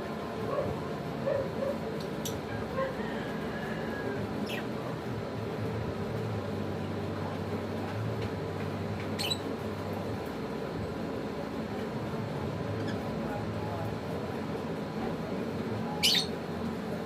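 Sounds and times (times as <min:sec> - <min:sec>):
bird high squeaks: 0:16.0 - 0:16.3.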